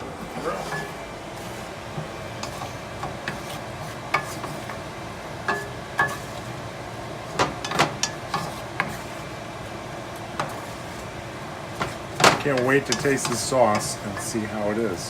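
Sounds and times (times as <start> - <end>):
range hood fan running: 0.0 - 15.0
utensil scraping a pan: 0.3 - 4.8, 5.5 - 6.6, 7.3 - 9.3, 11.8 - 14.4.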